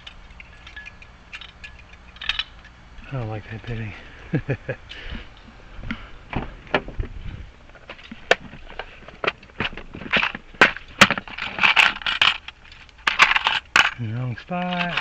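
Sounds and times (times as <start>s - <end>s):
metal key blanks clinking: 0.0s - 2.8s.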